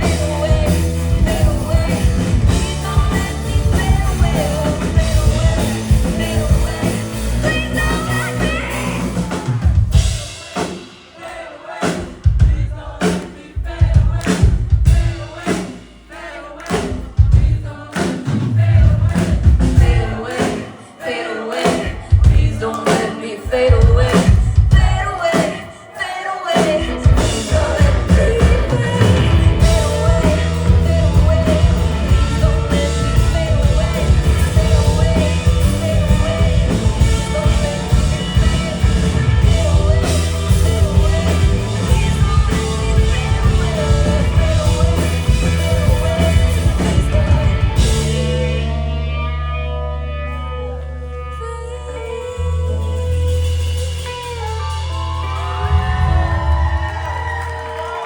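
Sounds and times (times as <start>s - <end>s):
live rock band playing: 0.0s - 12.4s, 18.2s - 20.8s, 26.5s - 58.0s.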